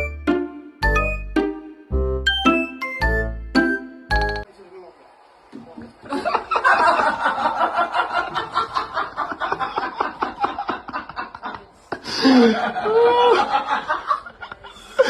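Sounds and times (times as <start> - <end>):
person laughing hard: 6.1 - 15.0.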